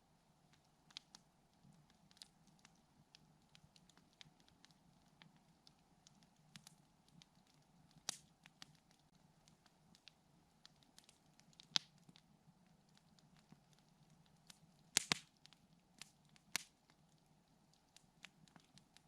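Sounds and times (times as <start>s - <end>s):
campfire crackling: 0.2s - 19.0s
fire pop: 14.9s - 15.3s.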